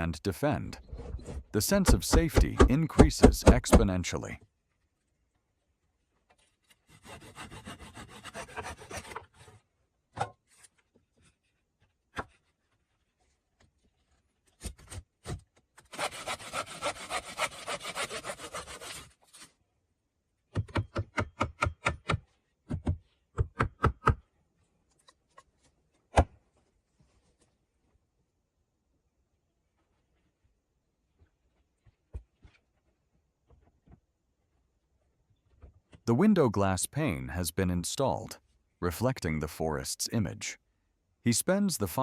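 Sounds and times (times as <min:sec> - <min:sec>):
sharp knocks: 0:01.8 - 0:03.9
handsaw cutting wood: 0:06.9 - 0:09.4, 0:15.9 - 0:19.1.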